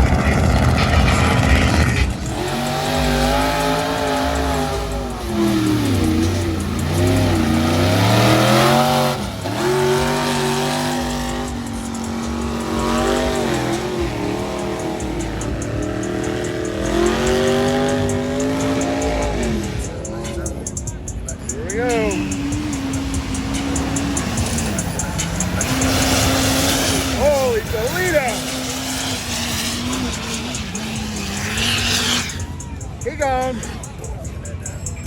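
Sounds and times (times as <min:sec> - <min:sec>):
truck engine revving: 0:00.0 - 0:35.0.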